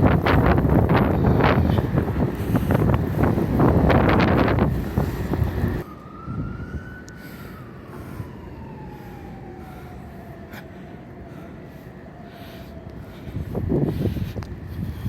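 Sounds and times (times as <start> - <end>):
low steady rumble: 0.0 - 5.8
wind buffeting microphone: 0.0 - 7.1, 12.7 - 15.0
emergency vehicle siren: 0.0 - 15.0.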